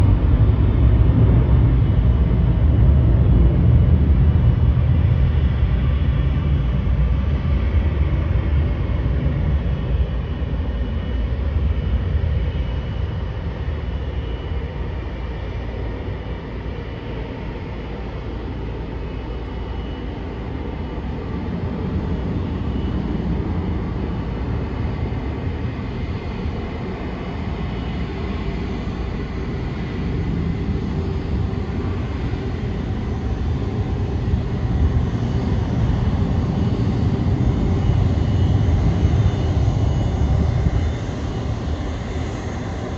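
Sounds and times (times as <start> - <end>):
jet engines running: 0.0 - 42.9.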